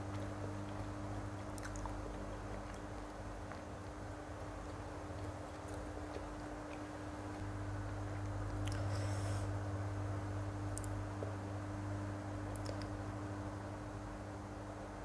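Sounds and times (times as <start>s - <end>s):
faint chewing: 0.0s - 9.5s, 12.4s - 13.1s
steady low hum: 0.0s - 15.0s.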